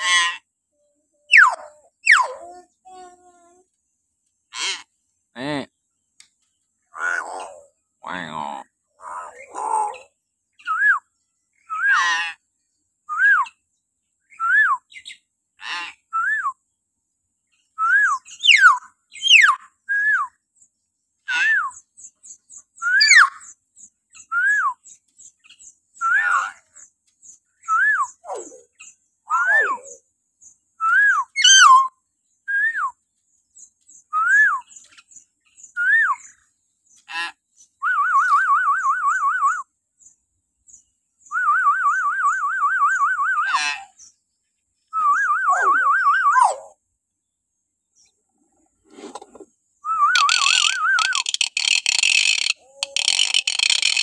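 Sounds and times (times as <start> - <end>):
myna calling in shrill whistles: 1.3 - 2.3, 22.8 - 23.4, 30.8 - 31.9, 49.8 - 54.0
warbled bird trills: 1.3 - 3.1, 22.2 - 23.5, 31.3 - 31.9, 50.1 - 54.0.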